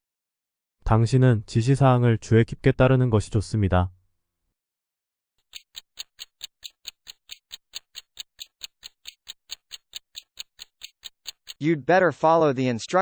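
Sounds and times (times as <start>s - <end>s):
clock ticking: 5.4s - 11.6s.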